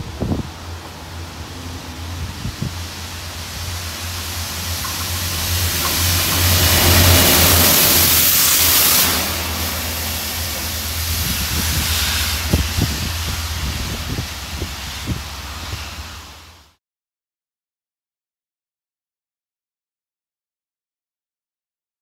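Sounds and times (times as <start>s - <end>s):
train rushing past: 0.0s - 16.8s.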